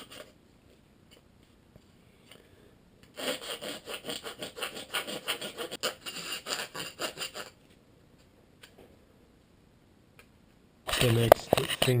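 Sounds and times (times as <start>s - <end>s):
chisel scraping back and forth: 3.2s - 7.6s.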